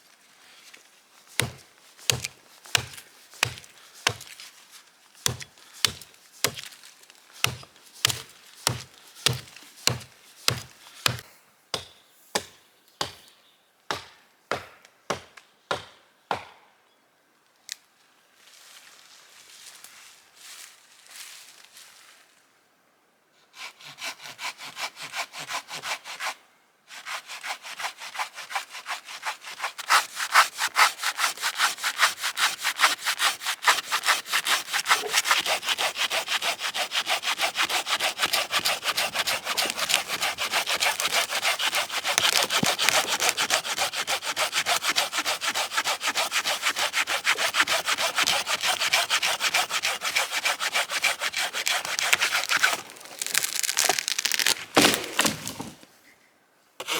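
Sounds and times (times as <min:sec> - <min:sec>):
hand saw cutting wood: 0:01.4 - 0:04.3, 0:05.2 - 0:06.7, 0:07.4 - 0:11.2, 0:23.6 - 0:55.8.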